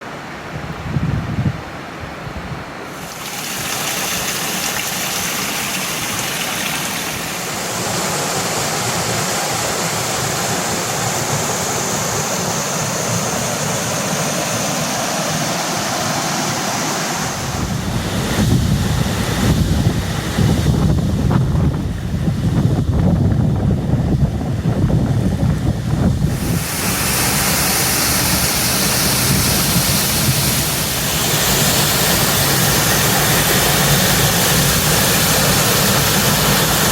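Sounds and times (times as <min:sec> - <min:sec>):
wind buffeting microphone: 0:00.5 - 0:07.7, 0:17.2 - 0:36.9
waterfall rushing: 0:02.8 - 0:20.9, 0:26.1 - 0:36.9.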